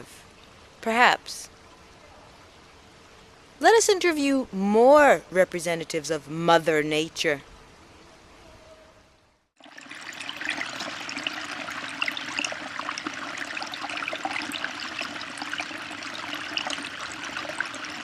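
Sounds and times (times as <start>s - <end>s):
water trickling and splashing: 9.6s - 18.0s.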